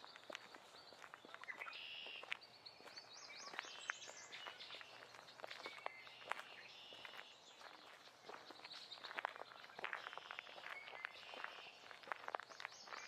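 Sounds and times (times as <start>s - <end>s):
light footsteps on forest floor: 0.0s - 13.0s
songbirds singing: 0.0s - 13.0s.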